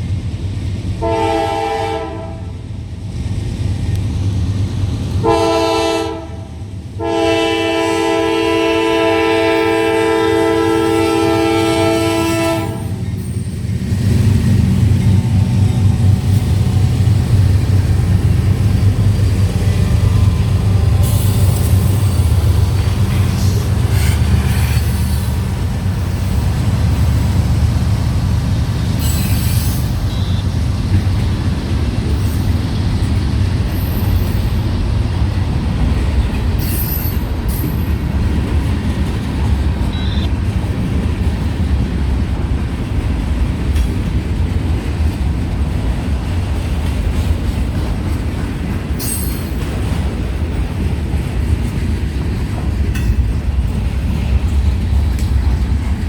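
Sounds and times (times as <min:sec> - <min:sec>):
freight train wheels rumbling: 0:00.0 - 0:56.0
high-pitched wheel squeals: 0:29.0 - 0:30.5, 0:36.6 - 0:37.7.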